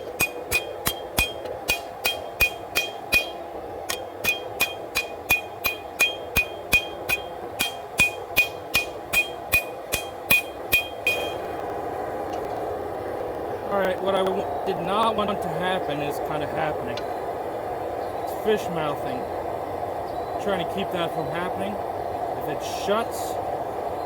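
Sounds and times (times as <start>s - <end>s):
hammer blows on steel: 0.0s - 11.5s.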